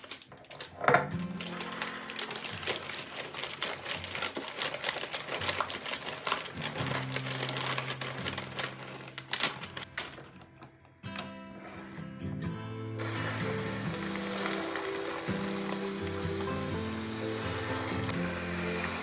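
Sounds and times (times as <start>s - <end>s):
grains poured into glass jar: 1.4s - 10.3s, 13.0s - 19.0s.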